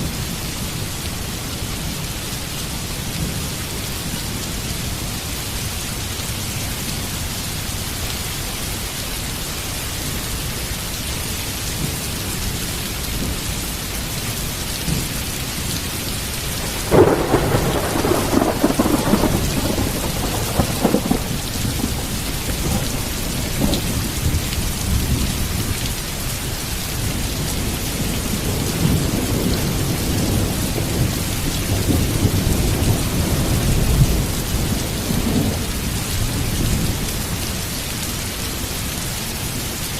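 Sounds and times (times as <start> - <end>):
heavy rain: 0.0 - 39.9
thunder: 16.6 - 25.3.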